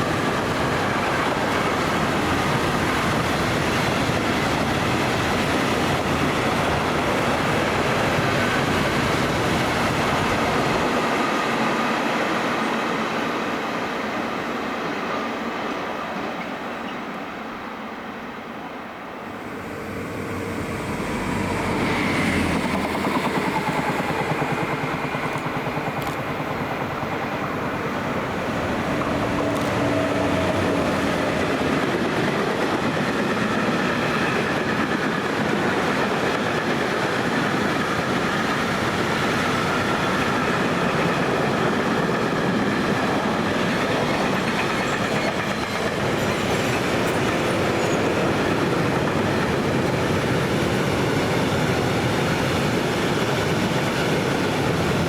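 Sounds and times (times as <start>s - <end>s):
train wheels rumbling on rails: 0.0s - 17.3s, 18.8s - 55.0s.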